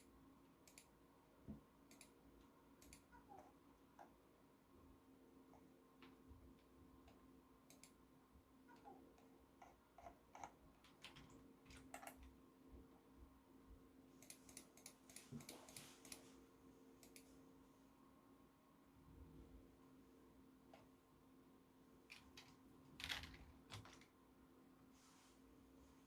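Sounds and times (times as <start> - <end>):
computer keyboard typing: 8.7 - 12.3, 22.1 - 24.1.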